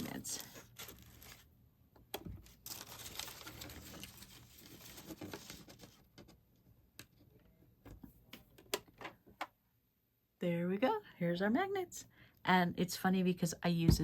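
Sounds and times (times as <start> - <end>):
plastic packaging crinkling: 0.0 - 1.5, 2.4 - 6.1.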